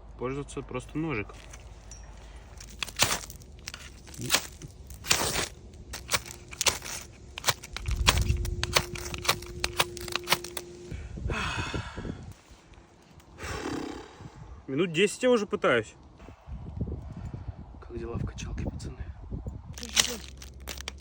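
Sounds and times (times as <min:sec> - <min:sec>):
short rustle: 0:01.3 - 0:10.9
knife scraping fire-steel rod: 0:02.6 - 0:10.7.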